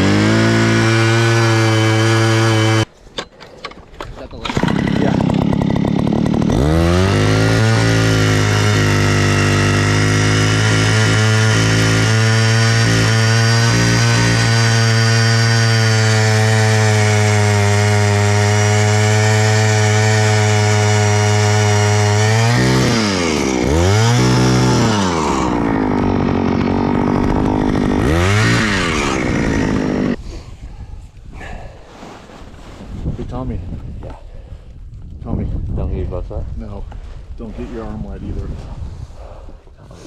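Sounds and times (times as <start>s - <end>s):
ice auger engine running: 0.0s - 2.9s, 4.4s - 30.2s.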